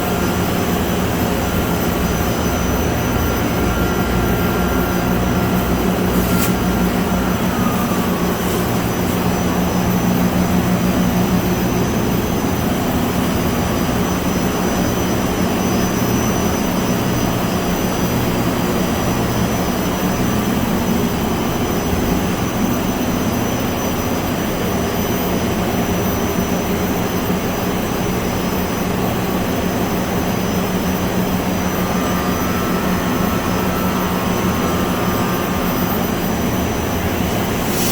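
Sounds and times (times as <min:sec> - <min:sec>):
faint high whine: 0:00.0 - 0:24.0, 0:29.0 - 0:37.9
machine drone with hum: 0:00.0 - 0:37.9
short falling tone: 0:02.5 - 0:10.6, 0:31.2 - 0:37.6.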